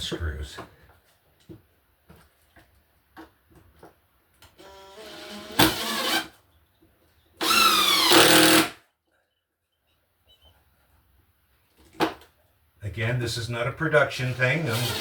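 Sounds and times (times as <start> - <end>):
power drill driving screws: 4.6 - 6.4, 7.4 - 8.8, 14.3 - 15.0.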